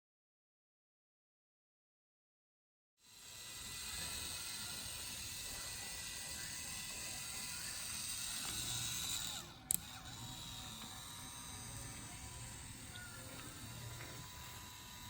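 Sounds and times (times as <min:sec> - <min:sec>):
toy train motor whirring: 0:03.0 - 0:15.0.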